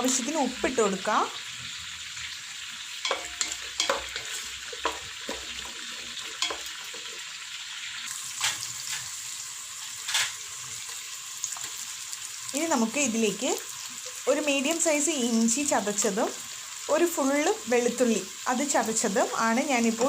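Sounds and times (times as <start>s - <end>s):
onions sizzling in hot oil: 0.0s - 20.0s
spoon scraping a pan: 2.9s - 7.5s, 8.1s - 11.9s.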